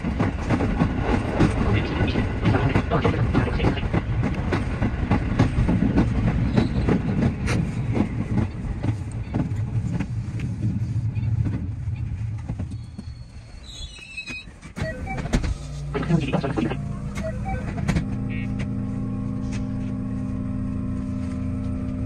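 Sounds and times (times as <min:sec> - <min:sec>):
train running rumble: 0:00.0 - 0:22.0
high brake squeal: 0:12.7 - 0:15.2.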